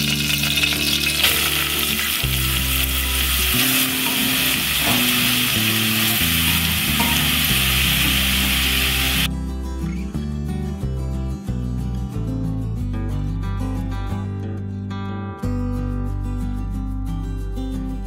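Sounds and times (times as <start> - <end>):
carrot frying hiss: 0.0 - 9.3.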